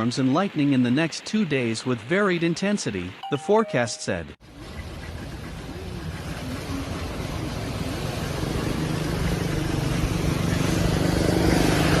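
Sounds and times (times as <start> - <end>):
road traffic: 4.4 - 12.0
vehicle engine approaching: 4.4 - 12.0
rushing water: 4.5 - 12.0.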